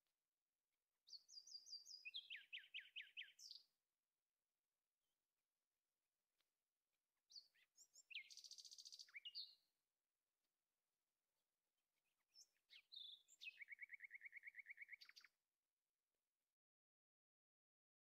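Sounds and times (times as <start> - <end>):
songbird singing faintly: 1.0 - 3.8, 7.2 - 9.8, 11.8 - 15.4.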